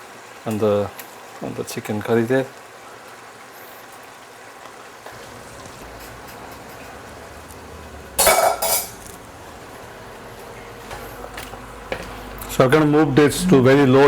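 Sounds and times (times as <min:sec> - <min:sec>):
faint kitchen background: 0:00.0 - 0:14.0
cookware clattering: 0:05.1 - 0:12.4.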